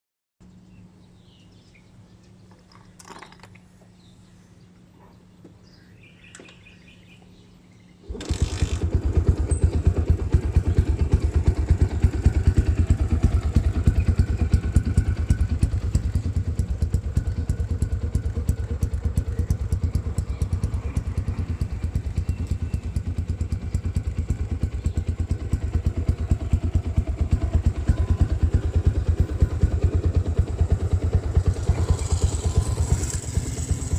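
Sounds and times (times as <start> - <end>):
engine starting and idling: 8.0 - 16.9, 25.4 - 33.9.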